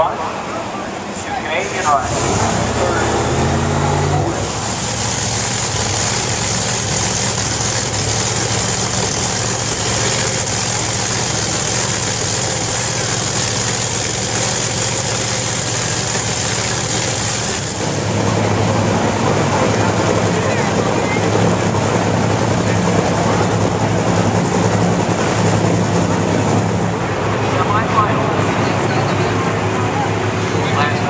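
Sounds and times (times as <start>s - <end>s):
drag racing car engines: 0.0s - 31.0s.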